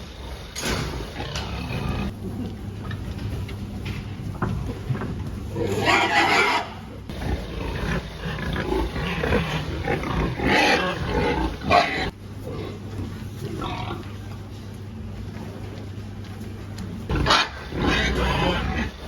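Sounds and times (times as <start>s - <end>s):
pigs calling: 0.2s - 2.6s, 4.6s - 14.5s, 16.9s - 19.0s
loud pig cries: 5.6s - 12.2s, 17.1s - 19.0s.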